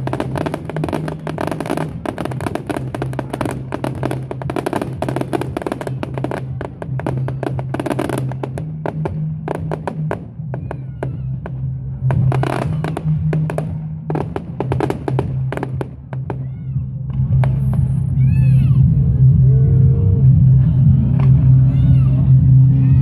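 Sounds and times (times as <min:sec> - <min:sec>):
fireworks bangs and crackles: 0:00.0 - 0:18.2.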